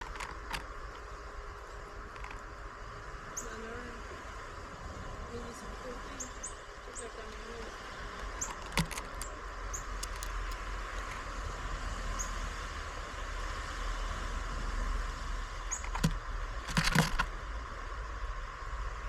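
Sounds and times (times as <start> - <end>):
sharp clicks: 0.0 - 1.0, 2.1 - 2.4, 8.1 - 11.2, 15.7 - 17.3.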